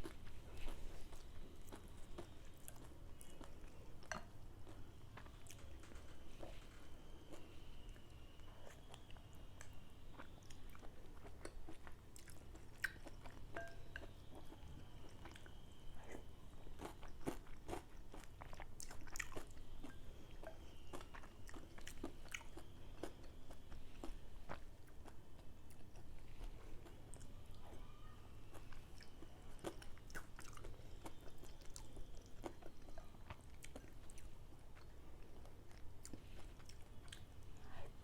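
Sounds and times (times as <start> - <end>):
chewing and biting: 15.1 - 20.0, 28.4 - 37.4.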